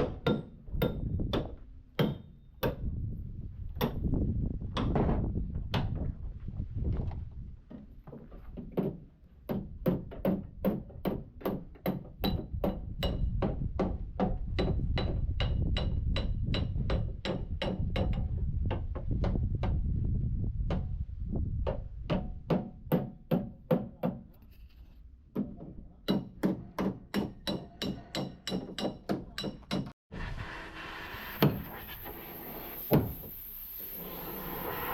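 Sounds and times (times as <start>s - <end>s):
hammer blows on metal: 11.9s - 21.0s.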